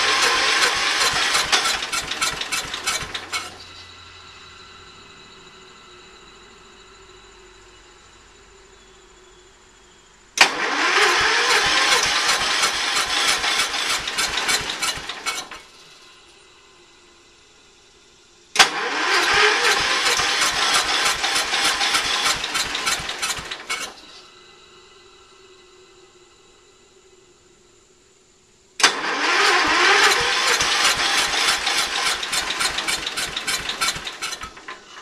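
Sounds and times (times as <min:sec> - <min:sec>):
engine cranking on electric starter: 0:00.0 - 0:04.4, 0:10.4 - 0:16.5, 0:18.5 - 0:24.5, 0:28.8 - 0:35.0.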